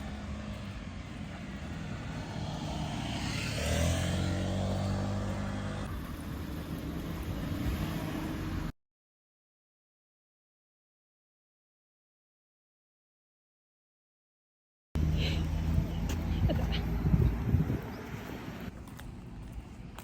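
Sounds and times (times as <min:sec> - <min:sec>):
vehicle engine and road noise: 0:00.0 - 0:08.8, 0:15.0 - 0:20.0.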